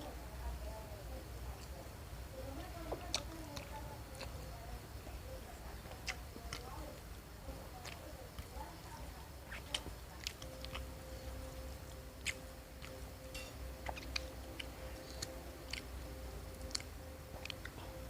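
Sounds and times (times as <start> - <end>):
faint steady hum: 0.0 - 18.0
chewing crunchy food: 2.5 - 18.0
wet mouth clicks: 9.5 - 10.9, 11.9 - 13.0, 13.8 - 15.9, 16.6 - 17.8.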